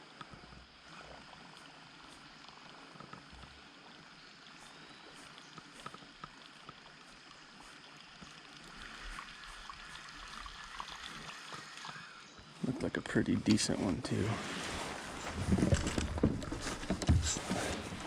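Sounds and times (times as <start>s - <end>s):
river water running: 0.0s - 18.0s
small ticks and knocks: 0.1s - 0.7s, 1.5s - 9.9s.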